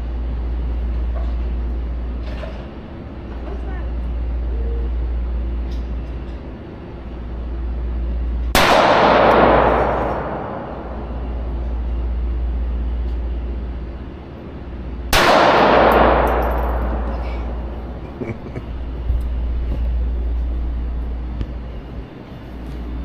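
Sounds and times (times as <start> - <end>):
steady low hum: 0.0 - 23.0
pistol shots ringing: 8.6 - 11.8, 15.1 - 18.2.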